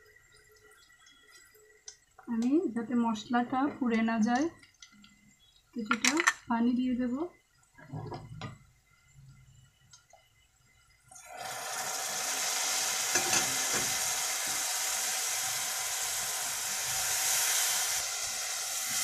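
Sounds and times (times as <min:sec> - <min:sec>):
masala sizzling in hot oil: 0:10.6 - 0:19.0.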